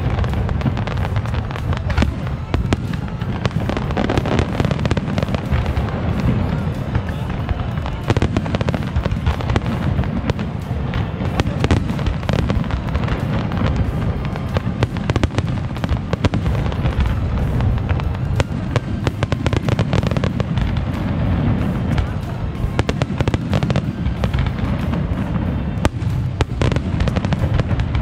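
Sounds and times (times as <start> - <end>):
fireworks bursts and crackling: 0.0 - 28.0
heavy low firework booms: 0.0 - 28.0.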